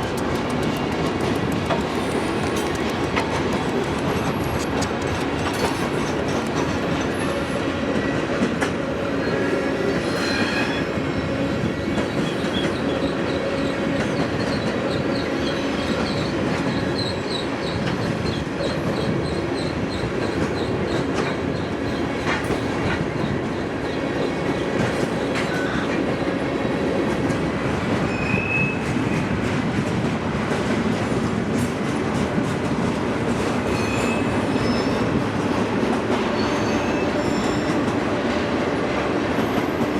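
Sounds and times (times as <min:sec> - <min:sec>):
clickety-clack over rail joints: 0:00.0 - 0:39.9
train wheels rumbling on rail: 0:00.0 - 0:39.9
high wheel squeals: 0:33.7 - 0:35.2, 0:36.4 - 0:37.8.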